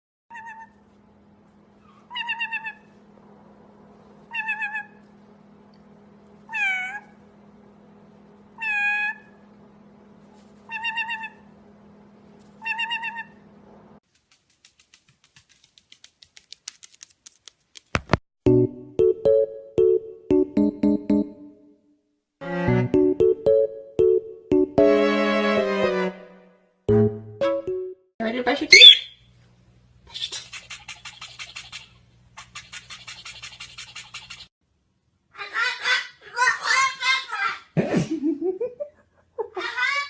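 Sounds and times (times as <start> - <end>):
quickening clicks: 14.1 - 18.2.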